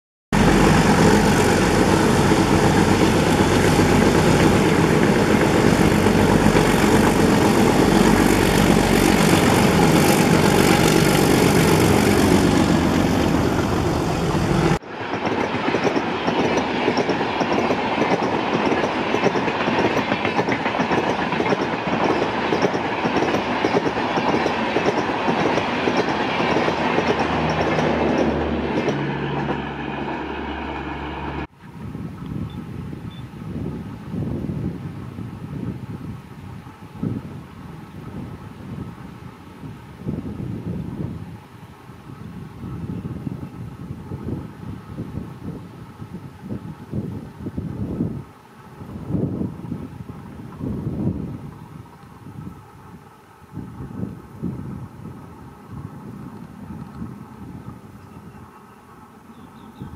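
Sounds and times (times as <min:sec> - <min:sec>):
diesel locomotives rumbling: 0:00.4 - 0:59.9
clickety-clack of wheels: 0:15.1 - 0:29.6.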